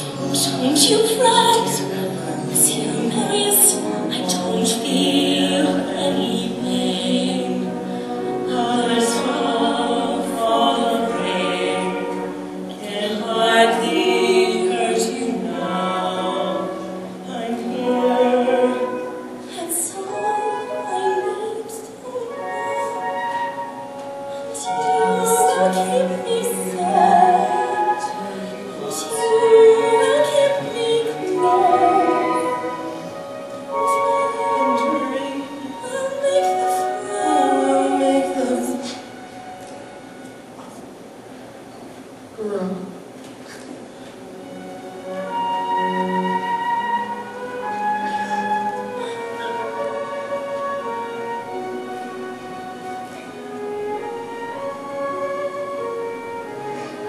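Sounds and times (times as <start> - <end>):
woman and man singing duet: 0.0 - 23.6, 24.2 - 39.2
instrumental accompaniment: 0.0 - 57.0.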